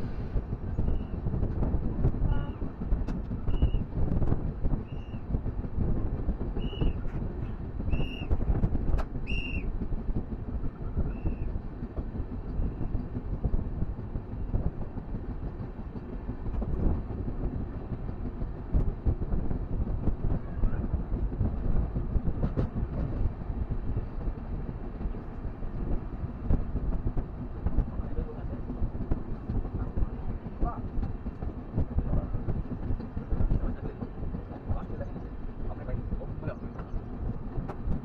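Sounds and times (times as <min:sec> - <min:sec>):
train rumbling on track: 0:00.0 - 0:38.0.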